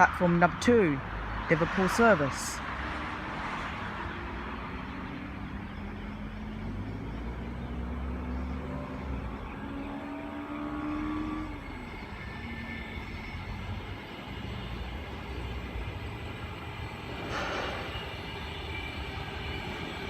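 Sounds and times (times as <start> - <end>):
electric train rumble: 0.0 - 20.0
train motor whine: 5.8 - 20.0.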